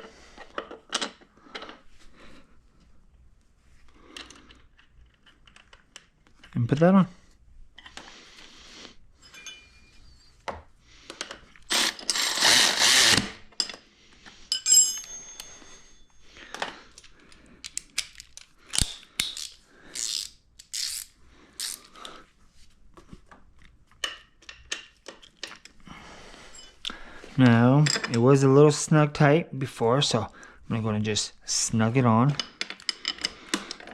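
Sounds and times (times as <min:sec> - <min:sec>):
metal parts clicking and clinking: 0:14.5 - 0:21.8, 0:32.3 - 0:33.9.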